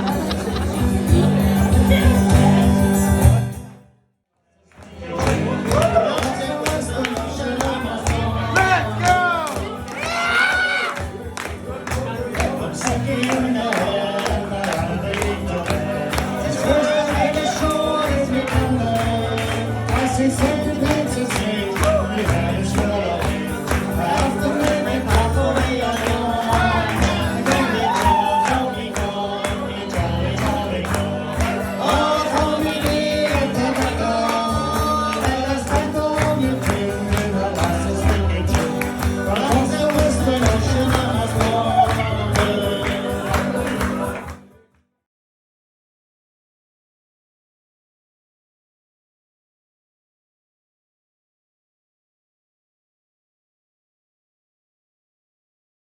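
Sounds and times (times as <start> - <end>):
folk band playing and singing: 0.0 - 3.7, 4.7 - 44.5.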